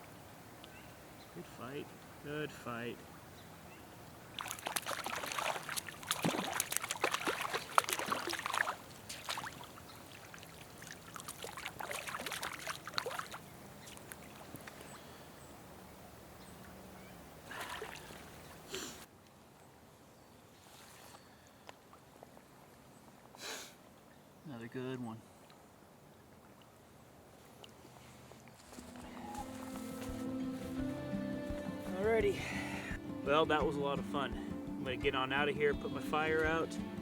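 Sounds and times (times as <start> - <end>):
river water splashing: 3.0 - 19.2, 25.3 - 34.4.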